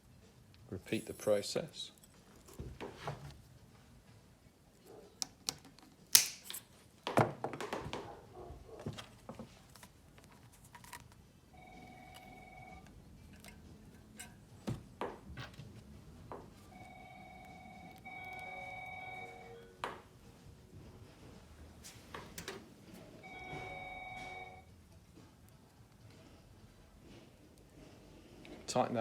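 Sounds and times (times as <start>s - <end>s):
metal parts clicking and knocking: 9.7s - 11.2s.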